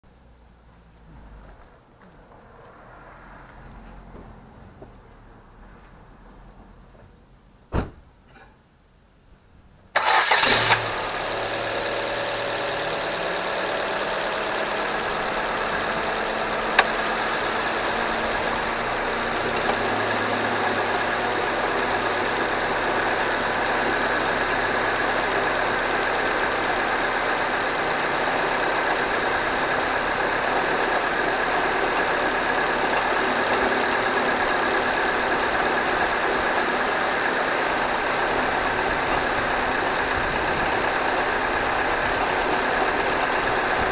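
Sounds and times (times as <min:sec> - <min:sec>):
compressor clutch click: 0:10.0 - 0:11.0, 0:19.3 - 0:29.9, 0:30.5 - 0:39.5
car engine idling: 0:10.0 - 0:43.9
faint engine ticking: 0:11.8 - 0:43.9.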